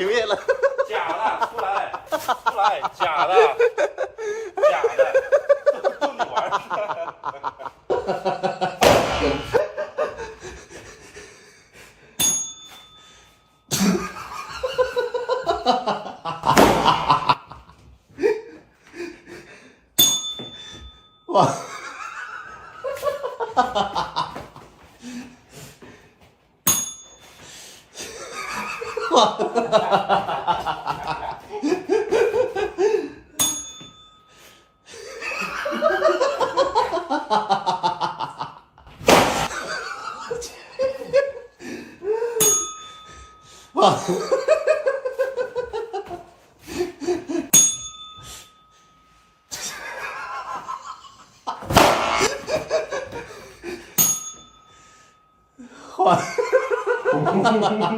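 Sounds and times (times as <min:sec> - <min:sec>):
people laughing: 0:00.0 - 0:11.6, 0:13.7 - 0:18.6, 0:21.3 - 0:24.6, 0:28.0 - 0:33.2, 0:34.9 - 0:38.7, 0:39.4 - 0:42.4, 0:43.8 - 0:47.5, 0:49.6 - 0:51.6, 0:55.8 - 0:57.9
short ringing chime: 0:12.2 - 0:13.7, 0:20.0 - 0:21.3, 0:26.7 - 0:27.4, 0:33.4 - 0:34.8, 0:42.4 - 0:43.7, 0:47.6 - 0:49.5, 0:54.0 - 0:55.6.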